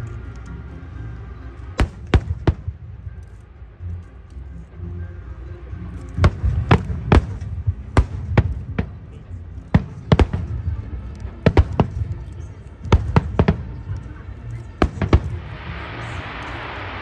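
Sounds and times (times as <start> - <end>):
low rumble: 0.0 - 17.0
fireworks bangs: 1.8 - 3.0, 6.2 - 12.3, 12.9 - 17.0.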